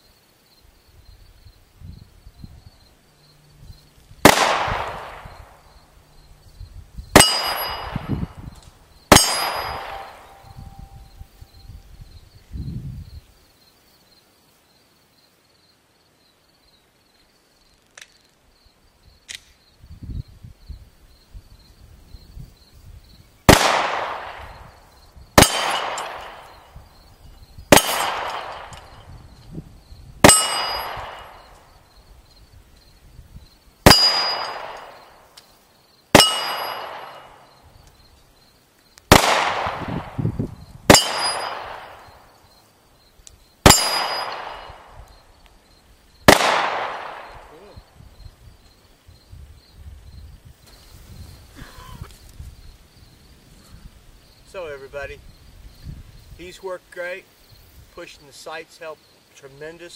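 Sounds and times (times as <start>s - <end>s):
pistol shots: 4.2s - 5.6s, 7.2s - 8.4s, 9.1s - 10.5s, 23.5s - 24.6s, 25.4s - 26.7s, 27.7s - 29.0s, 30.2s - 31.6s, 33.8s - 35.1s, 36.1s - 37.5s, 39.1s - 40.2s, 40.9s - 42.2s, 43.6s - 45.0s, 46.3s - 47.6s
steel target ringing clang: 7.2s - 8.2s, 9.1s - 10.9s, 25.4s - 26.4s, 27.7s - 29.0s, 30.2s - 31.4s, 33.9s - 34.8s, 36.2s - 37.4s, 40.9s - 42.0s, 43.7s - 44.8s.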